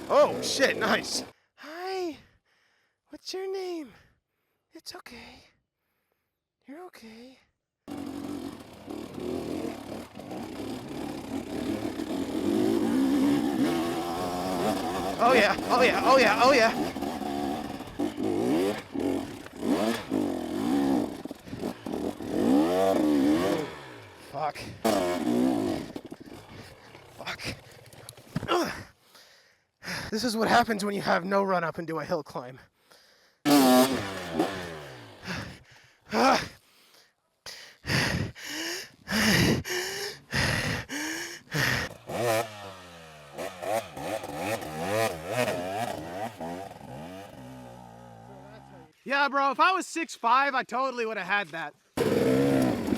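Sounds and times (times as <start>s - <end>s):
dirt bike engine revving: 0.0s - 1.3s, 7.9s - 28.7s, 33.4s - 36.4s, 39.1s - 48.9s, 51.9s - 52.9s.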